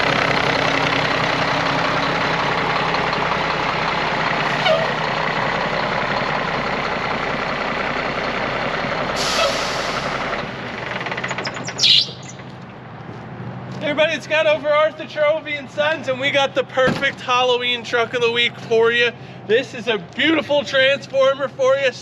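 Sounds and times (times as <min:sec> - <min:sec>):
diesel truck engine running: 0:00.0 - 0:22.0
air brake hisses: 0:09.2 - 0:10.3.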